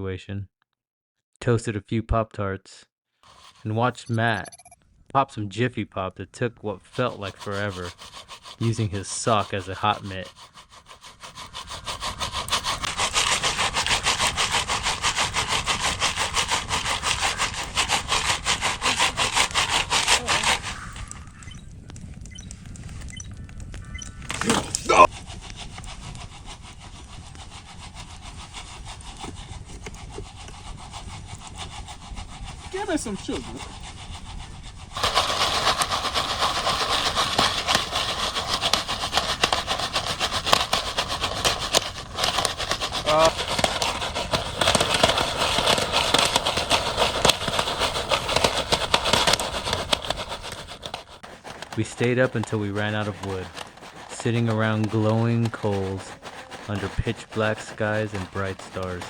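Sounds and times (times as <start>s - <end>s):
campfire crackling and hissing: 3.2s - 3.9s, 6.7s - 59.0s
foil pan rattling: 6.8s - 21.4s, 23.8s - 30.6s, 34.6s - 59.0s.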